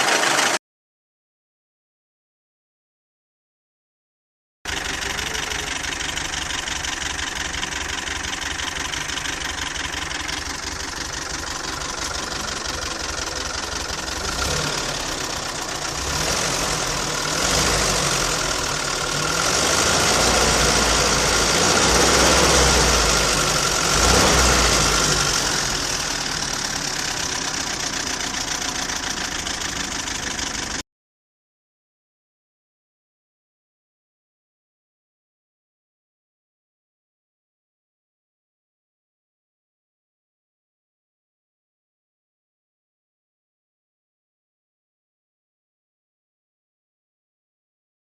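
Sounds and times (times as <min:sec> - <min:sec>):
petrol engine idling with knock: 0:04.7 - 0:30.8.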